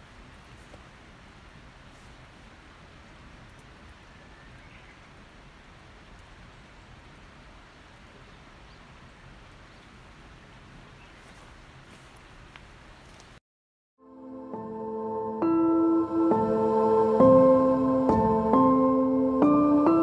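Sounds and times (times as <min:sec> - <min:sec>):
steady outdoor hiss: 0:00.0 - 0:13.4, 0:14.2 - 0:20.0
soft ticks: 0:03.4 - 0:04.7.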